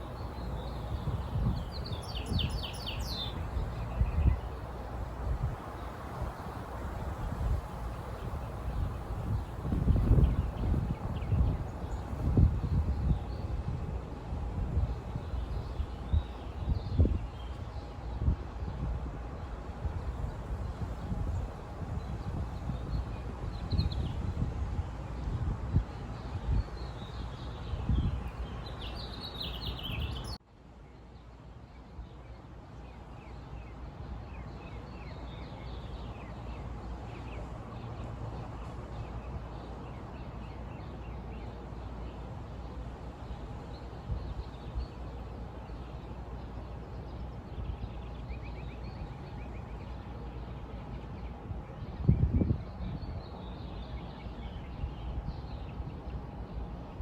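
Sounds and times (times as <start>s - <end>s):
small birds chirping faintly: 0.0s - 13.7s.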